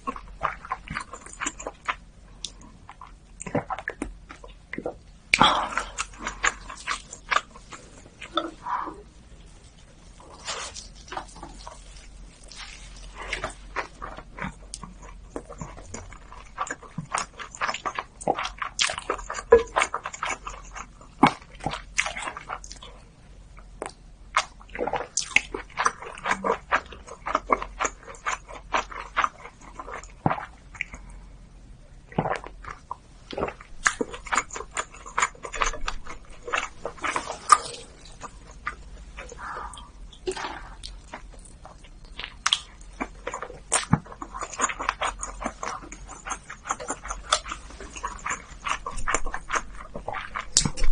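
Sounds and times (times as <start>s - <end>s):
wet chewing mouth clicks: 32.1s - 50.9s.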